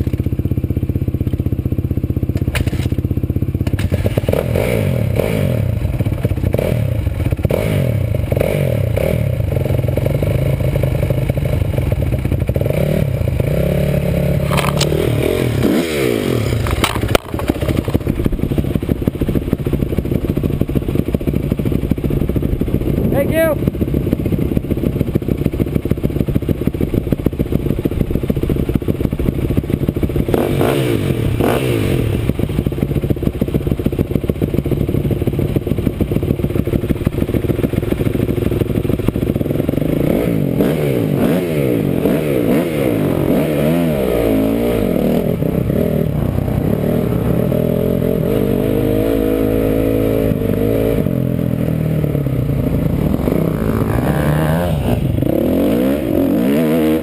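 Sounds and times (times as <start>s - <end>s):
off-road vehicle engine revving: 3.6s - 34.6s, 35.5s - 57.0s.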